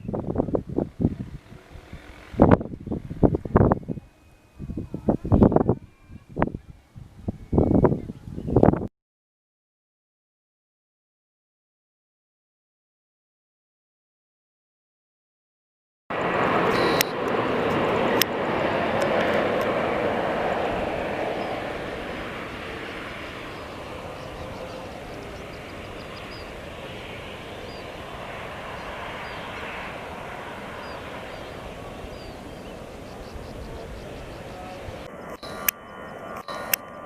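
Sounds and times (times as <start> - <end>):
jet engines rumbling: 0.0 - 8.4, 16.1 - 37.0
sharp clicks: 35.3 - 35.8, 36.4 - 37.0.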